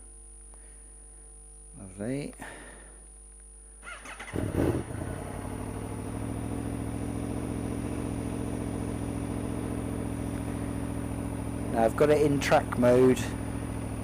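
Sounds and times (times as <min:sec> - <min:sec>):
motorcycle engine starting and idling: 0:03.8 - 0:14.0.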